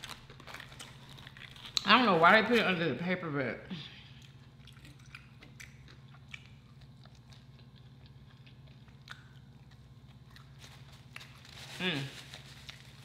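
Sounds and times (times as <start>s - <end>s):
chewing fries: 0.0s - 2.6s, 4.1s - 13.0s
low steady hum: 0.0s - 13.0s.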